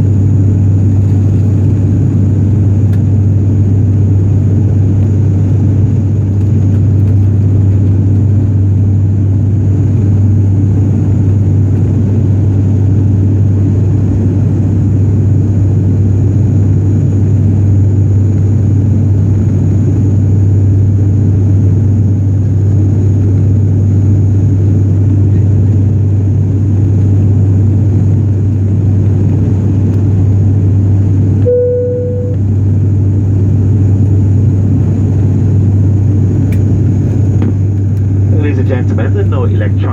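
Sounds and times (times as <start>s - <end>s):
propeller plane cabin drone: 0.0s - 39.9s
chime tone: 31.5s - 32.4s.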